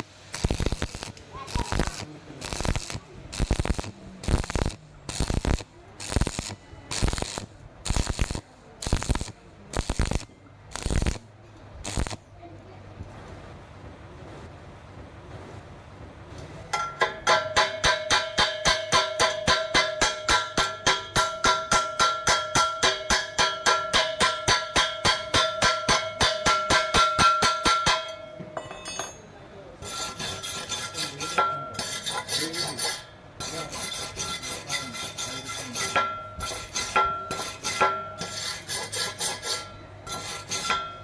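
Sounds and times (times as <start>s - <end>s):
hand tool scraping steel pipe: 16.8s - 29.2s, 29.8s - 41.0s.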